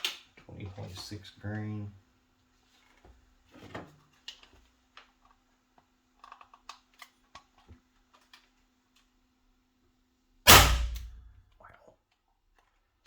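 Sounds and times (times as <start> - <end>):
clicks and taps handling toy revolver: 4.2 - 9.1.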